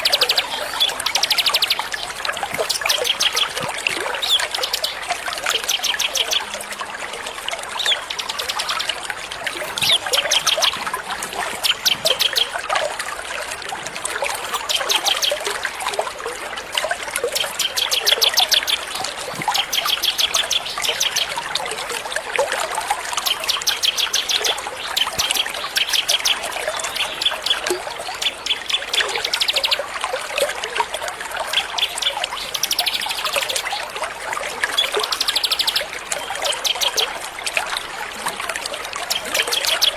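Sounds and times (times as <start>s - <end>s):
small songbirds trilling: 0.0s - 6.6s, 31.6s - 33.9s, 34.8s - 37.2s
trickle of running water: 0.0s - 39.9s.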